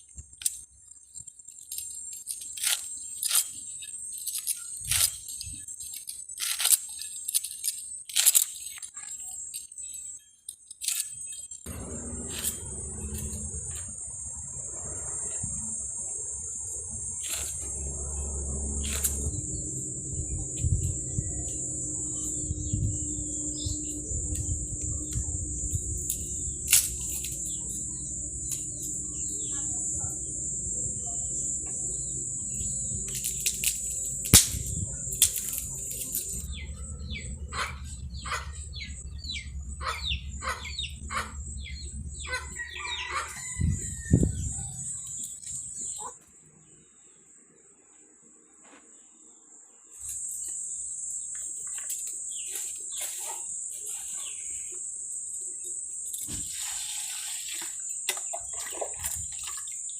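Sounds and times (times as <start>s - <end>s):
high-pitched insect drone: 0.0s - 46.1s, 49.9s - 59.9s
birds chirping: 17.2s - 33.4s, 35.7s - 46.2s.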